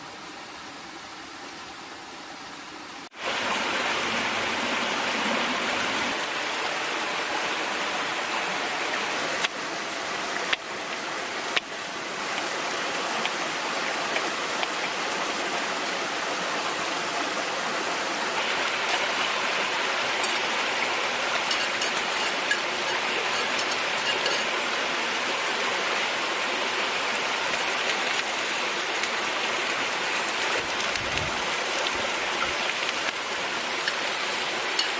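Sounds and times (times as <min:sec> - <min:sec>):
food sizzling in a pan: 0:18.5 - 0:24.8, 0:32.9 - 0:34.9.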